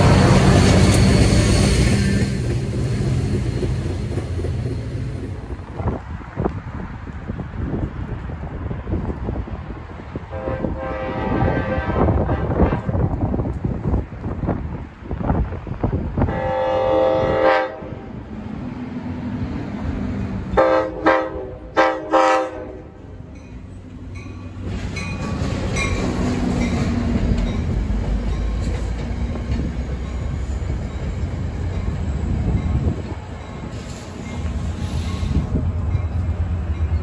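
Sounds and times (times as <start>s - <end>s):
train wheels rumbling on rail: 0.0s - 37.0s
train horn blasts: 10.3s - 13.2s, 16.2s - 18.1s, 20.5s - 22.9s.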